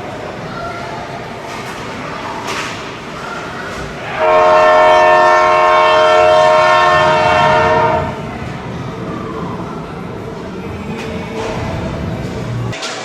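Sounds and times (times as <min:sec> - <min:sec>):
crowd noise: 0:00.0 - 0:13.0
game horn blast: 0:04.2 - 0:08.2.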